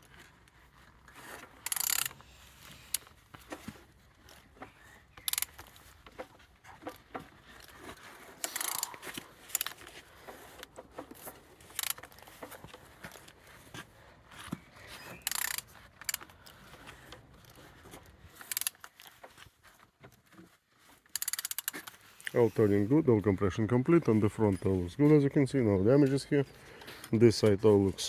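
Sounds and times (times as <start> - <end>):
short scraping rasps: 7.9 - 13.0, 14.5 - 19.0.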